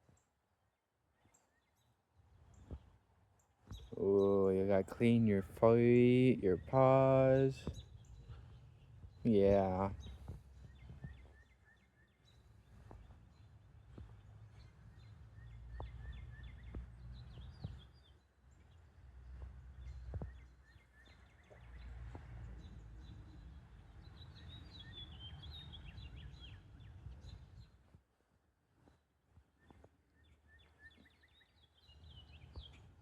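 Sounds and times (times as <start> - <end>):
small birds chirping: 1.0 - 33.0.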